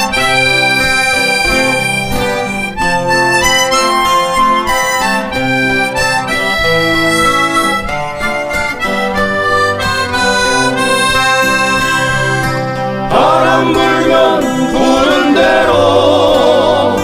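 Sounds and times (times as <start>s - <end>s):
acoustic guitars playing: 0.0s - 17.0s
sustained melody notes: 0.0s - 17.0s.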